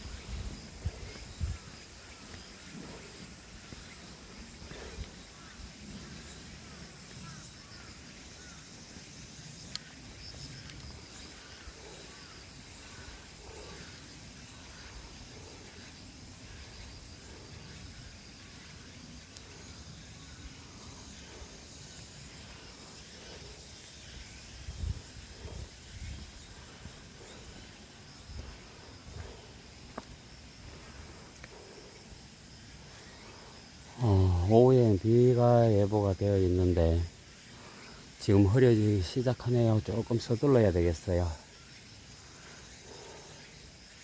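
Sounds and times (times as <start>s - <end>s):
steady high hiss: 0.0s - 44.0s.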